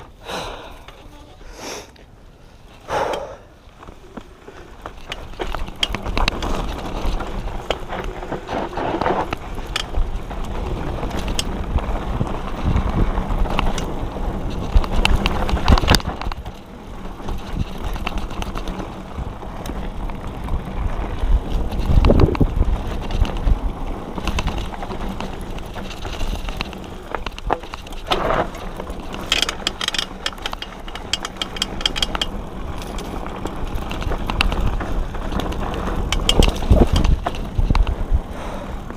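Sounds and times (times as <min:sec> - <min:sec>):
bike tyres rumbling on dirt: 0:02.1 - 0:38.9
chain and frame clattering: 0:24.2 - 0:33.2, 0:35.3 - 0:37.9.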